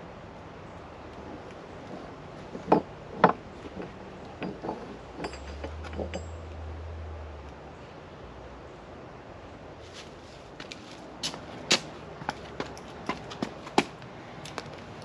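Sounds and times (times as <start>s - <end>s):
objects knocking and clinking: 2.5s - 6.4s.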